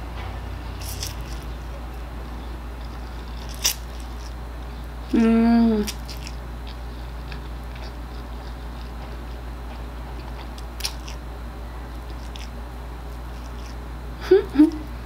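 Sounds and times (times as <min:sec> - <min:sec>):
steady low hum: 0:00.0 - 0:15.0
chewing with wet mouth clicks: 0:00.8 - 0:01.5, 0:05.9 - 0:11.2, 0:11.9 - 0:13.8.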